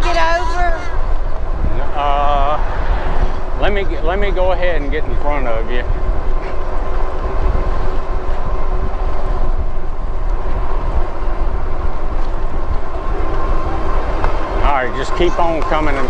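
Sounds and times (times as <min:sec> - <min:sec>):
wind buffeting microphone: 0:00.0 - 0:16.0
thin steady whine: 0:10.8 - 0:16.0.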